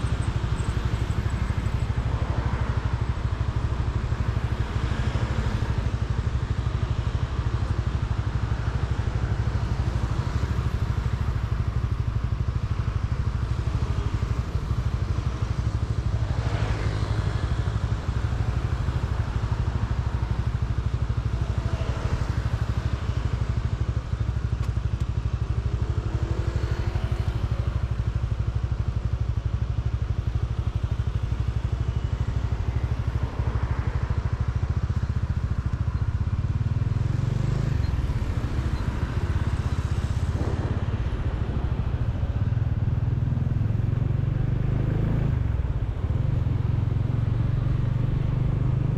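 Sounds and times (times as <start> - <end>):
traffic passing by: 0.0 - 5.9, 31.4 - 48.9
motorcycle engine running: 0.0 - 48.9
wind and road noise: 0.0 - 48.9.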